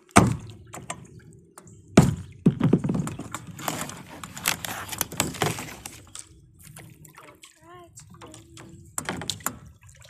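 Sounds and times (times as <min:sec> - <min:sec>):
paddle strokes splashing: 0:02.0 - 0:10.0
water dripping off paddle: 0:03.1 - 0:10.0.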